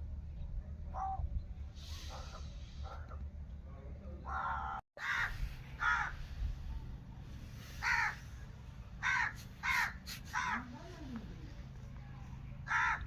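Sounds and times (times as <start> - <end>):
bird harsh calls: 0.9 - 3.3, 4.2 - 6.6, 7.5 - 10.8, 12.6 - 13.0.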